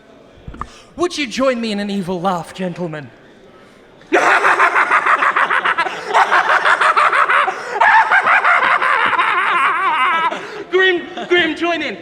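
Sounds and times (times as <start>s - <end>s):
men laughing evilly: 4.1s - 11.4s.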